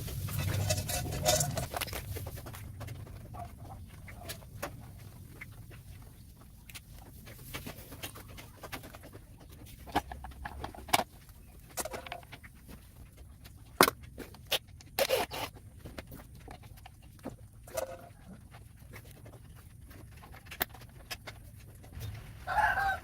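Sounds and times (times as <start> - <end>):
scraping rustle: 0.0 - 6.0.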